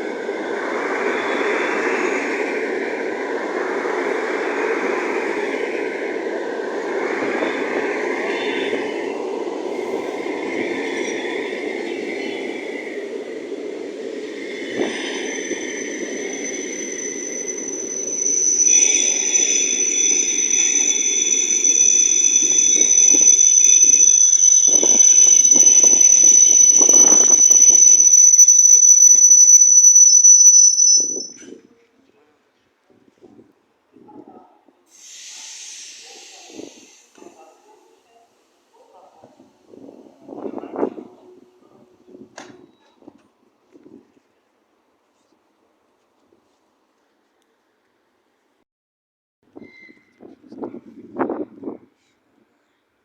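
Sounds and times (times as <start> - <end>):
train wheels rumbling on rails: 0.0 - 26.3
metal-on-metal squeal: 9.8 - 11.4, 14.8 - 31.5.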